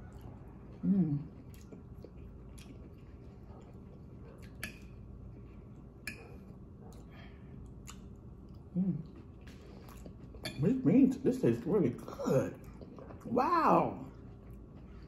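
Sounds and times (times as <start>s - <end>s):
person chewing: 0.0s - 11.3s, 11.9s - 13.3s, 14.1s - 15.0s
person humming mmm: 0.8s - 1.4s.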